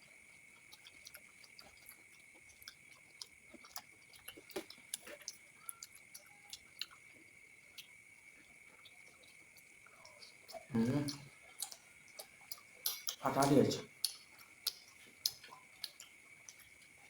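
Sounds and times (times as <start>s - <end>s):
chewing: 0.0s - 17.0s.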